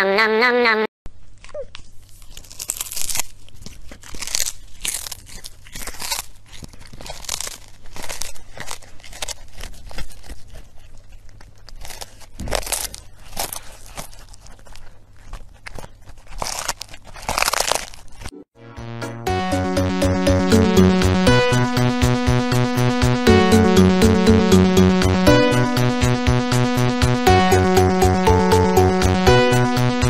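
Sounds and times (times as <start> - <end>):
kitten crunching fish: 1.1 - 18.3.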